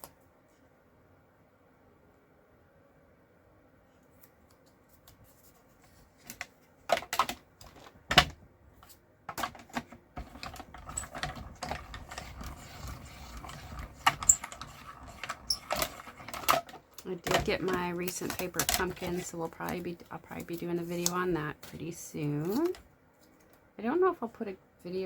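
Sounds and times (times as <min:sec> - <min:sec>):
craft tools clicking and knocking: 0:06.3 - 0:08.4, 0:09.3 - 0:21.3.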